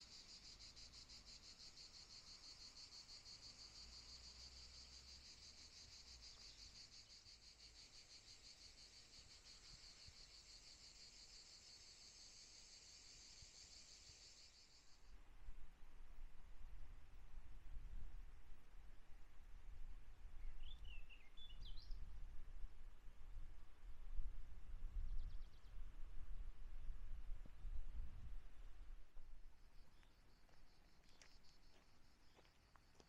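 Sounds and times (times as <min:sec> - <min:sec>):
high-pitched insect chorus: 0:00.0 - 0:15.2, 0:29.6 - 0:33.0.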